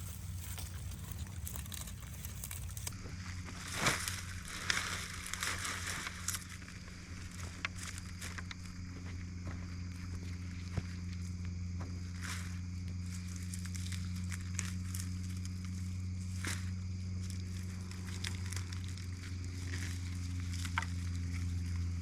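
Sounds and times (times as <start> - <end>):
dry onion skins crackling: 0.0 - 3.0, 13.3 - 22.0
steady low hum: 0.0 - 22.0.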